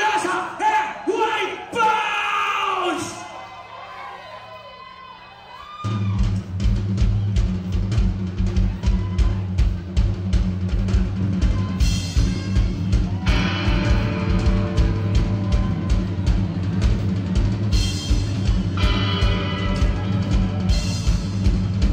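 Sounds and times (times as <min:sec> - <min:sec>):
live rock band playing: 0:05.9 - 0:21.9
heavy bass line: 0:12.1 - 0:21.9.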